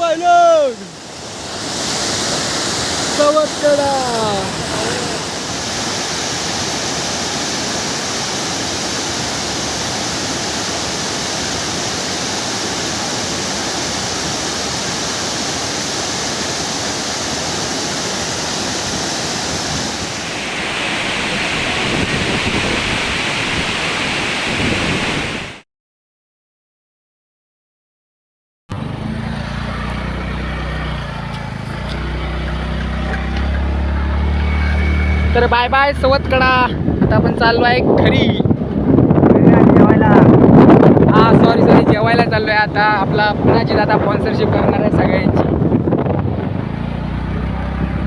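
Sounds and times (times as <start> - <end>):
waterfall rushing: 1.0 - 25.6.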